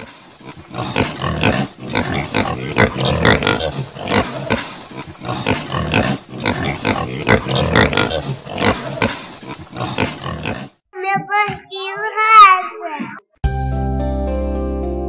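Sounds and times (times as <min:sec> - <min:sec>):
pig grunting: 0:00.0 - 0:10.8.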